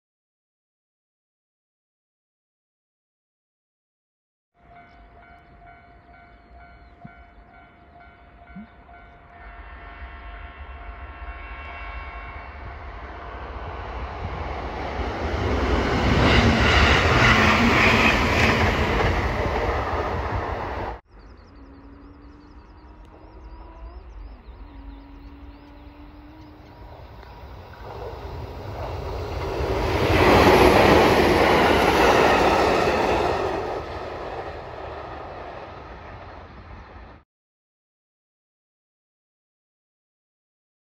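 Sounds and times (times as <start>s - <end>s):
distant train approaching: 4.6s - 37.2s
electric train rumble: 4.6s - 37.2s.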